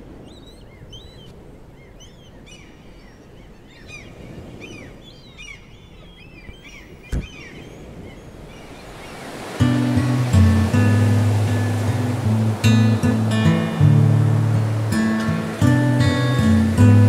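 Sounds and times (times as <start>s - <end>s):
small birds chirping: 0.1s - 10.4s.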